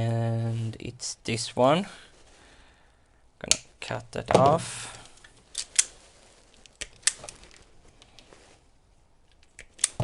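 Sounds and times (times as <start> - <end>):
wire cutters snipping: 9.4 - 10.0.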